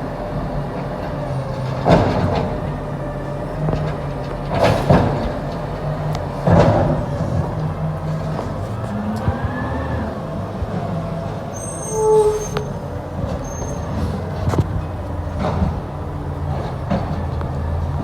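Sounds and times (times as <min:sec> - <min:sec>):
diesel truck engine running: 0:00.0 - 0:18.0
brief squeal: 0:11.5 - 0:12.8, 0:13.4 - 0:14.2.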